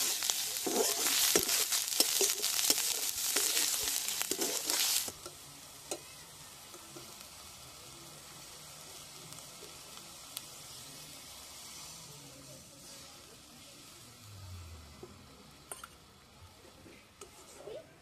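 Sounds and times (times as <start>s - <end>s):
faint hiss: 0.0s - 17.8s
curry sizzling in a pan: 0.0s - 18.0s.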